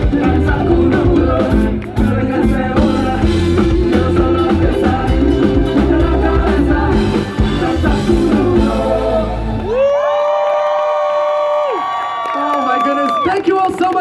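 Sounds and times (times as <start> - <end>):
live latin band playing: 0.0 - 9.8.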